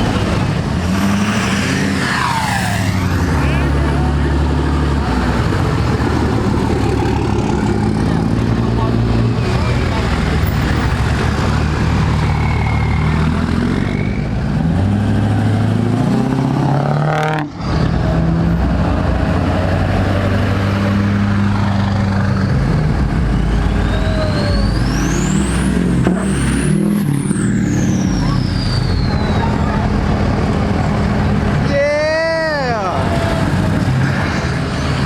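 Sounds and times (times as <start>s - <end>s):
diesel truck engines running: 0.0s - 35.0s
rising and falling whine: 21.1s - 31.2s.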